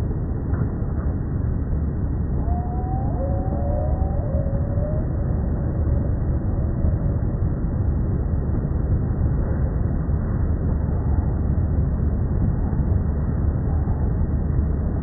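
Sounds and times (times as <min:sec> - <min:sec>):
slowed bird calls: 0:02.4 - 0:07.0.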